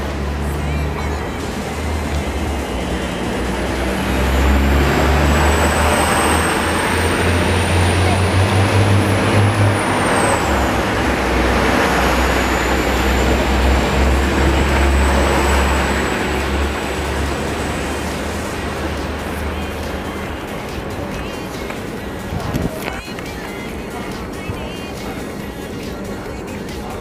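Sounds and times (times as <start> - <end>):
high train whine: 0.0 - 27.0
train rumbling on rails: 0.0 - 27.0.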